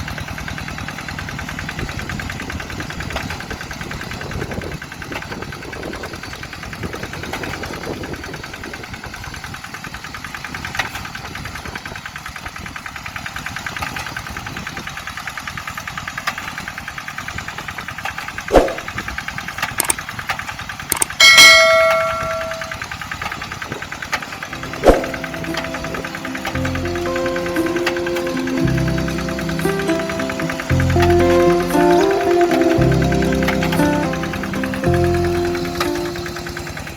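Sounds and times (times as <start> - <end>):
loud metallic ring: 21.0 - 22.9
diesel engine knocking beat: 24.5 - 36.9.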